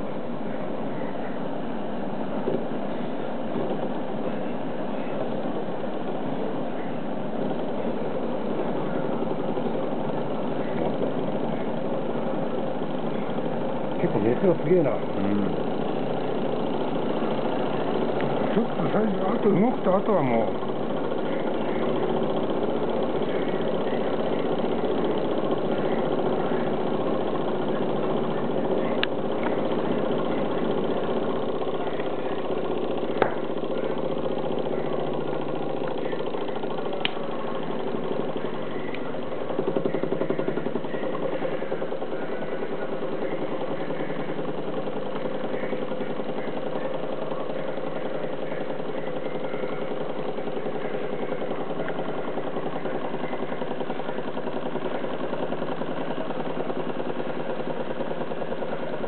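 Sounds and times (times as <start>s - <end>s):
engine mechanical clatter: 0.0s - 59.0s
sharp clicks: 20.6s - 42.2s.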